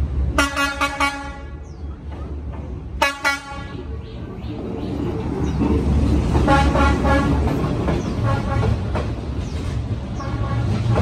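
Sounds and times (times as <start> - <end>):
diesel locomotive engine rumbling: 0.0 - 11.0
train horn short toots: 0.4 - 1.6, 3.0 - 3.8, 6.4 - 7.4, 8.3 - 8.9, 10.2 - 11.0.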